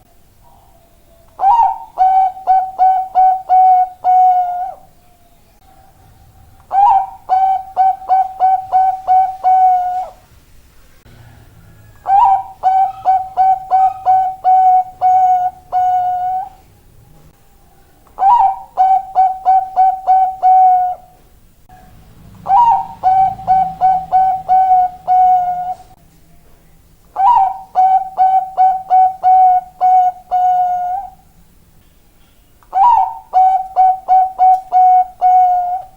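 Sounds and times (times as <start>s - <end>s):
dove cooing: 0.4s - 4.9s, 5.6s - 10.2s, 11.2s - 16.6s, 18.1s - 21.2s, 22.3s - 26.0s, 27.2s - 31.3s, 32.7s - 35.9s.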